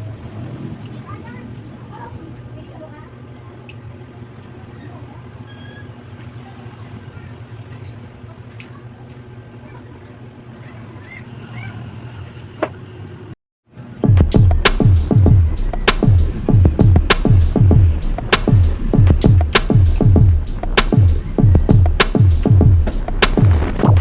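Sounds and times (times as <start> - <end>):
electronic music with fast beat: 14.0 - 24.0.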